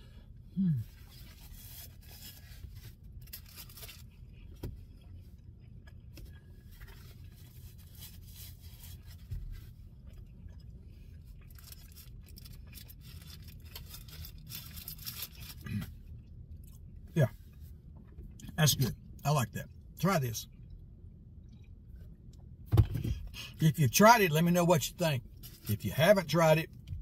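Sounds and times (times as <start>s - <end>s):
low car cabin hum: 0.0s - 27.0s
soft chewing: 0.3s - 19.0s, 20.4s - 22.6s
paper wrapper rustling: 11.6s - 15.6s.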